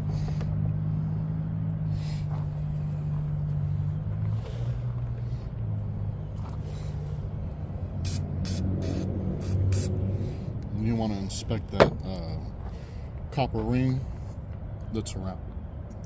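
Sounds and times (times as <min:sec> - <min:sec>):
steady low hum: 0:00.0 - 0:16.0
aerosol can spraying hiss: 0:08.0 - 0:09.9.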